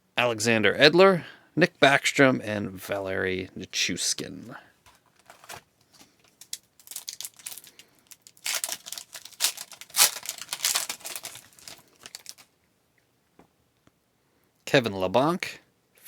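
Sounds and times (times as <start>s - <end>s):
wrapper crinkling and tearing: 5.2s - 12.5s.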